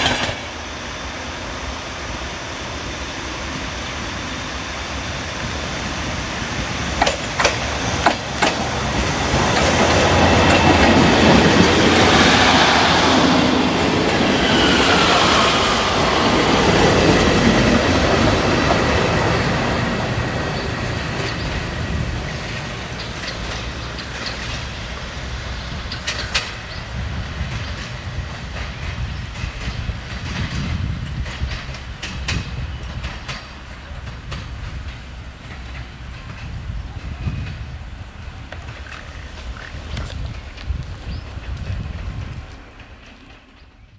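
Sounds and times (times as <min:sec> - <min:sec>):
diesel train engine passing: 0:00.0 - 0:43.9
train wheel clacks over joints: 0:06.8 - 0:13.0, 0:20.6 - 0:26.8, 0:27.4 - 0:37.8.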